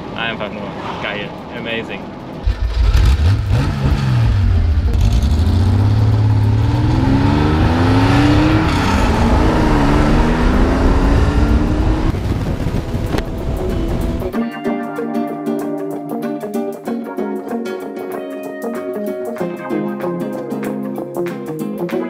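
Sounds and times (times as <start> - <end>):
wind noise: 0.7 - 14.4
car engine accelerating: 2.4 - 14.4.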